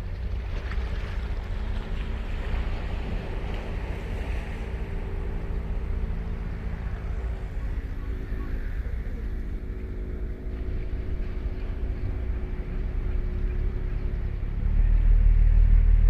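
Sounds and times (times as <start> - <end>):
surf washing on beach: 0.0 - 10.3
low engine hum: 0.0 - 16.0.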